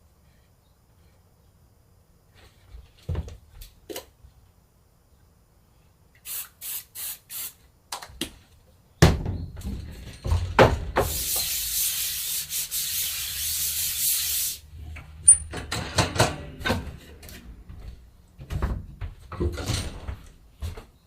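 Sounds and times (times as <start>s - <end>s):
steady hiss: 4.3s - 8.8s, 10.9s - 14.9s
short bursts of hissing: 6.2s - 7.7s, 11.0s - 14.7s.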